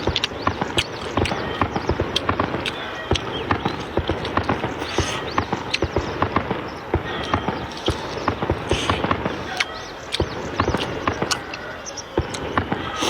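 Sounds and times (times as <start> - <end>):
person chewing noodles: 0.0 - 5.9, 7.2 - 11.6
slurp: 2.2 - 5.8.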